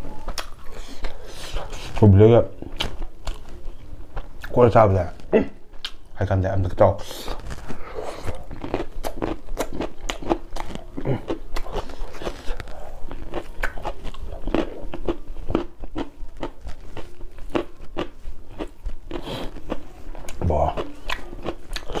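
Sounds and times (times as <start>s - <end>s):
person chewing crunchy food: 0.0s - 6.1s, 7.0s - 22.0s.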